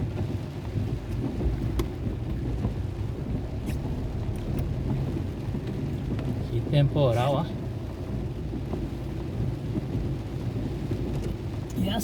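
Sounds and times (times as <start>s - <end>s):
low rumble: 0.0s - 11.7s
heavy rain: 0.0s - 12.0s.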